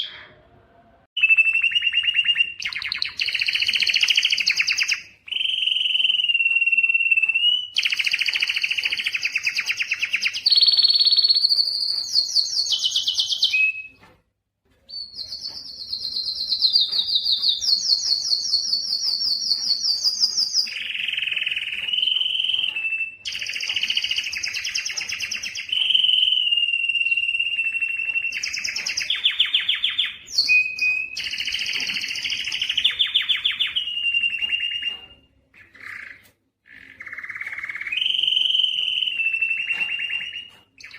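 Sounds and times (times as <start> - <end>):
canary singing trills: 1.2 - 14.1, 14.8 - 40.9.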